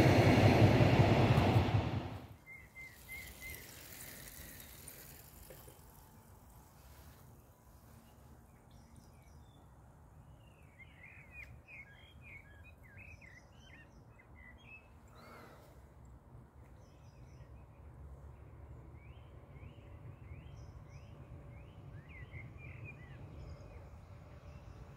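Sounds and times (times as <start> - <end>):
low background rumble: 0.0 - 2.3.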